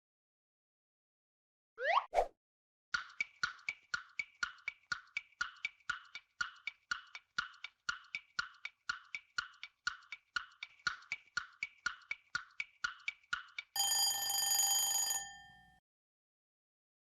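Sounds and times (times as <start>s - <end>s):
clock-like timer ticking: 3.0s - 14.9s.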